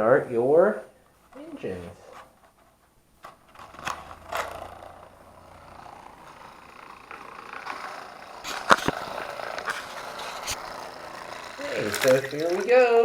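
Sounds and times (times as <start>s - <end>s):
small fan motor whirring: 3.2s - 13.0s.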